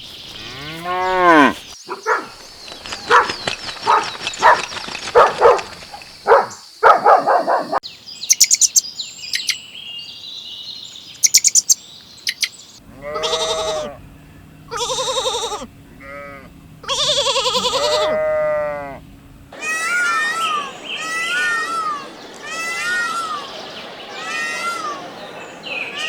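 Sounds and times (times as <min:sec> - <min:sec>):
birds chirping: 0:00.0 - 0:26.0
sheep bleating: 0:12.8 - 0:14.0, 0:14.7 - 0:23.5
short rough animal calls: 0:12.9 - 0:14.0, 0:14.7 - 0:23.4.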